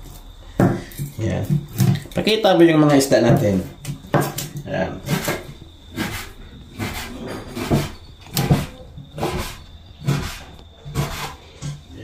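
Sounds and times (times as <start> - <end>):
knife scraping fish: 5.0 - 11.4.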